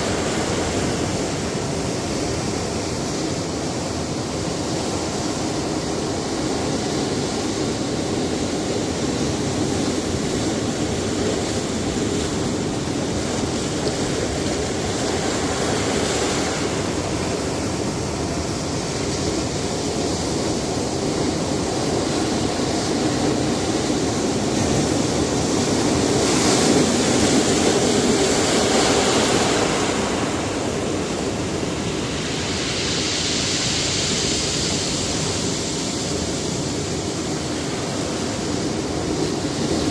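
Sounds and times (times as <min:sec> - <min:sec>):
surf washing against rocky shore: 0:00.0 - 0:39.9.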